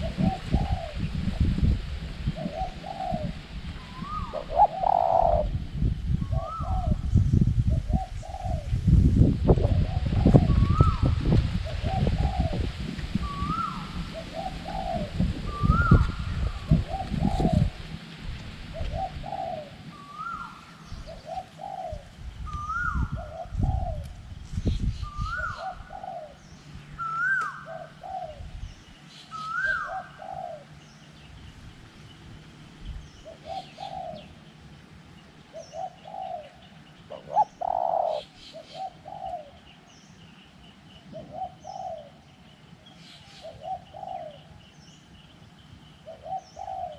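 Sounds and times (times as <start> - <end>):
doves cooing: 0.0 - 1.5, 2.3 - 7.1, 7.7 - 8.8, 9.6 - 18.0, 18.7 - 24.1, 25.0 - 26.4, 27.0 - 28.5, 29.3 - 30.8, 33.2 - 34.6, 35.4 - 39.8, 41.1 - 42.3, 43.2 - 44.7, 46.0 - 46.9
wind rumble on microphone: 0.0 - 40.1
small birds chirping: 18.8 - 46.9.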